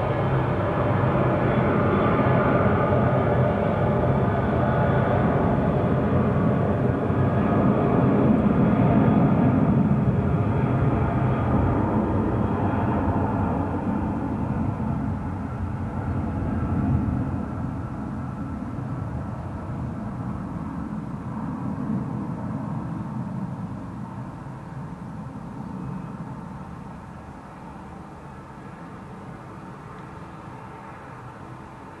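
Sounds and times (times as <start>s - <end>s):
jet engine rumble: 0.0s - 32.0s.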